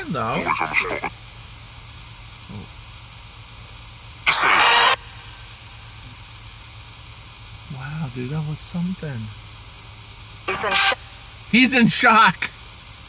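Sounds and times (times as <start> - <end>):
distorted voice-like burst: 0.0 - 1.1, 7.7 - 9.3, 10.5 - 12.5
radio static hiss: 0.0 - 13.0.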